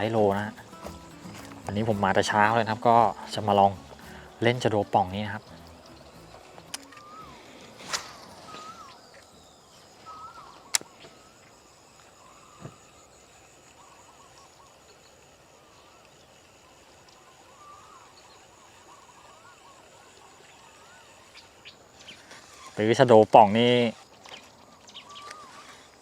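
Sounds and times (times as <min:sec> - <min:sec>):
birds chirping: 0:00.0 - 0:26.0
sharp click: 0:07.8 - 0:08.4, 0:10.7 - 0:11.1.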